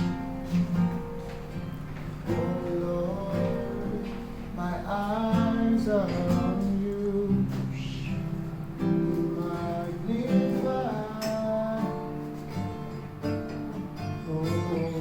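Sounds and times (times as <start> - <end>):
acoustic guitar: 0.0 - 15.0
person singing: 9.1 - 12.4.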